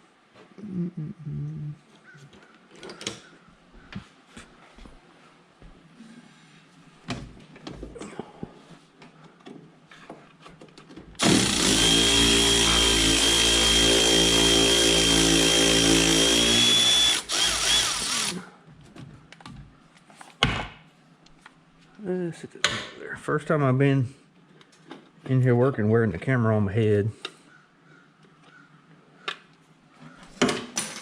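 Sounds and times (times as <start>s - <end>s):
handheld power tool running: 11.2s - 18.4s.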